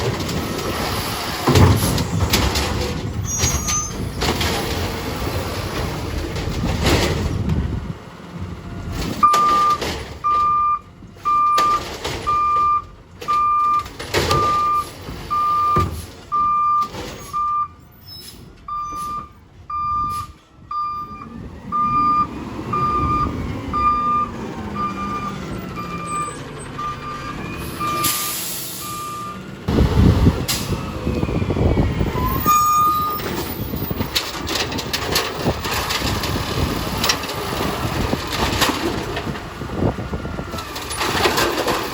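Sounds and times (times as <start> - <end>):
truck engine rumble: 0.0 - 41.9
truck reversing alarm beeping: 9.2 - 29.6, 30.4 - 34.5
air brake hissing: 28.0 - 29.0.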